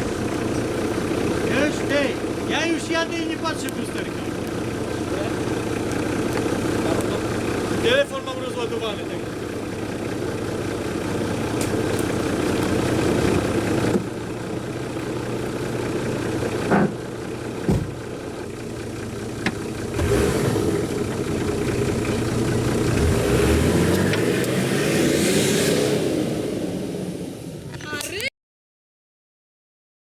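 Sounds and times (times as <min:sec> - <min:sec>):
off-road vehicle engine running: 0:00.0 - 0:28.3
engine revving: 0:19.8 - 0:27.6.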